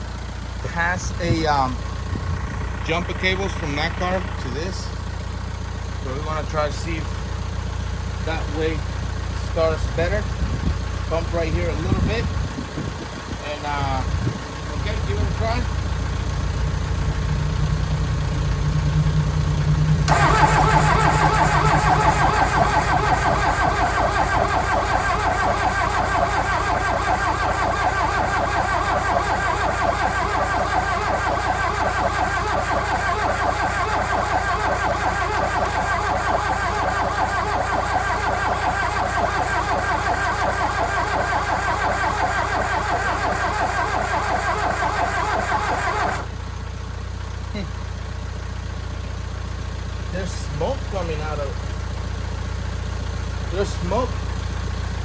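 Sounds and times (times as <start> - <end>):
low engine rumble: 0.0 - 55.0
starter motor cranking: 19.8 - 46.4.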